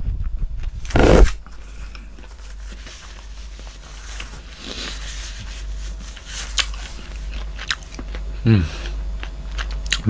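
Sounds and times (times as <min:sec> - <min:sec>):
close-miked chewing: 0:06.1 - 0:10.0.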